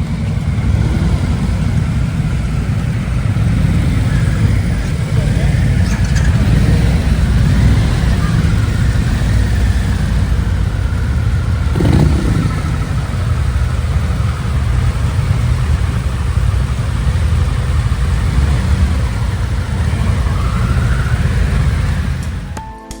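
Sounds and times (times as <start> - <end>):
falling pitch sweep: 0.0 - 14.8
motorcycle engine rumbling: 0.0 - 23.0.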